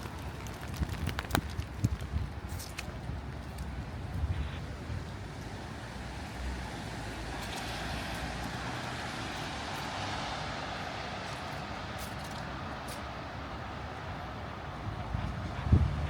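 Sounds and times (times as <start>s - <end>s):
wet traffic noise: 0.0s - 16.0s
car tyres hissing on wet street: 4.6s - 16.0s.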